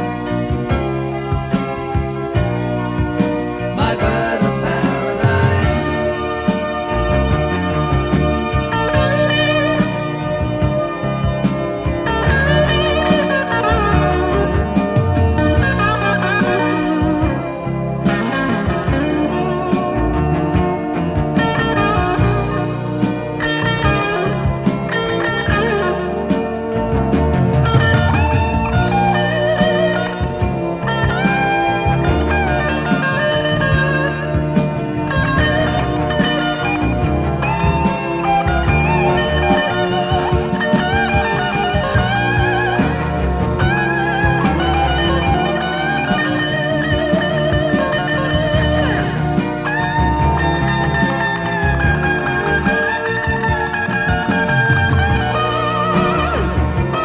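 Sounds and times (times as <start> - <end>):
bass and drums: 0.0 - 57.0
electric guitar solo: 0.0 - 57.0.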